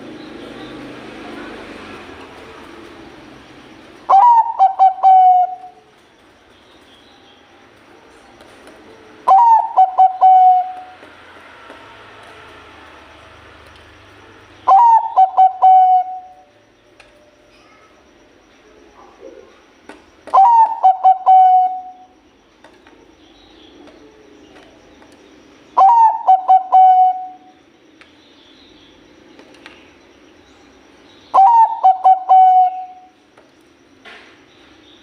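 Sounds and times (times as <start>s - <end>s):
dove cooing: 4.0s - 5.9s, 8.0s - 11.0s, 14.6s - 16.5s, 20.2s - 22.2s, 25.8s - 27.5s, 31.3s - 33.2s.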